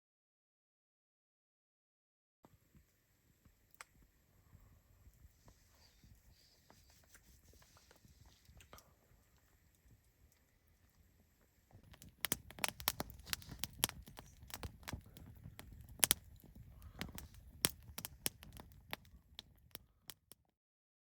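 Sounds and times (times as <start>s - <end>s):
sharp crackles and clicks: 11.7s - 20.5s.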